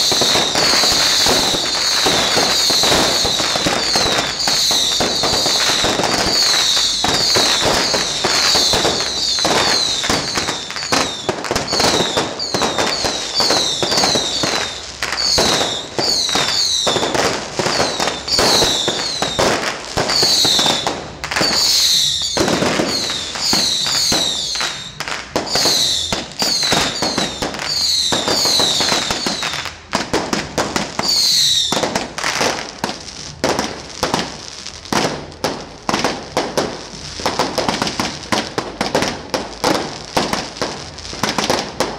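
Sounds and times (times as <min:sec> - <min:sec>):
falling firework whistles: 0:00.0 - 0:32.6
fireworks crackling and popping: 0:00.0 - 0:41.9.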